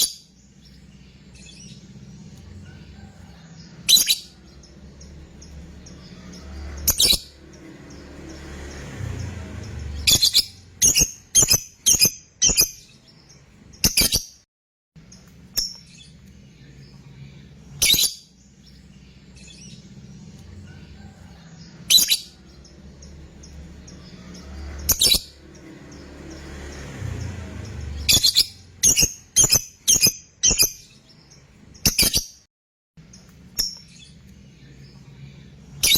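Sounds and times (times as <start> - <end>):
lovebird shrill calls: 17.8 - 18.2.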